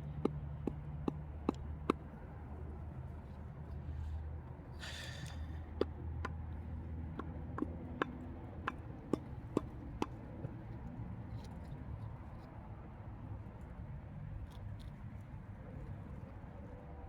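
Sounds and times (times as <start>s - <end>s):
hand tools clicking and tapping: 0.0s - 2.0s, 5.8s - 10.2s
low steady hum: 0.0s - 11.2s.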